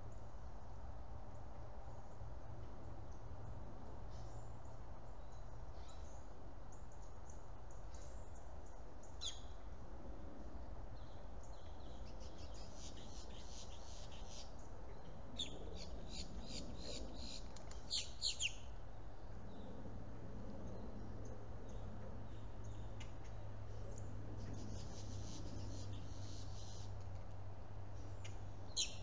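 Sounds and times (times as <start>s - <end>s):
steady low hum: 0.0s - 29.0s
birds chirping: 11.0s - 18.7s, 28.2s - 29.0s.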